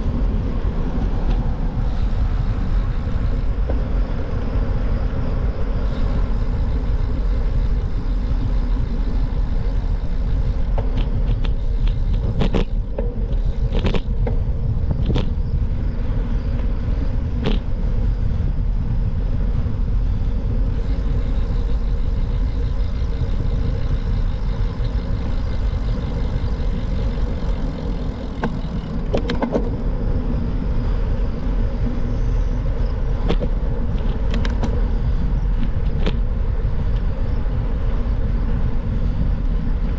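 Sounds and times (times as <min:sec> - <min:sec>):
road rumble: 0:00.0 - 0:39.9
wind: 0:00.0 - 0:39.9
sharp clicks and rattles: 0:06.1 - 0:15.4, 0:17.4 - 0:17.7, 0:20.6 - 0:29.9, 0:33.2 - 0:34.8.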